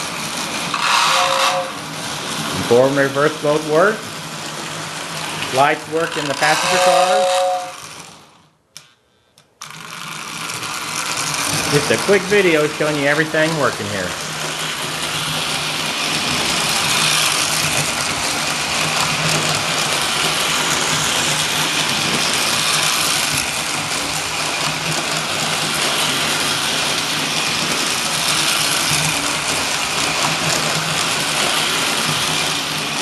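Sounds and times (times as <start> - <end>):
toy train motor whirring: 0.0 - 33.0
wheels on rails: 0.0 - 33.0.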